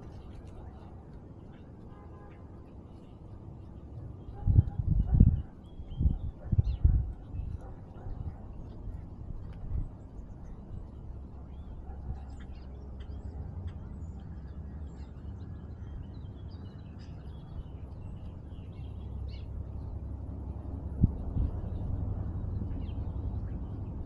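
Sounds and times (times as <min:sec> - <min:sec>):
steady low rumble: 0:02.6 - 0:24.0
small birds chirping: 0:10.0 - 0:20.0.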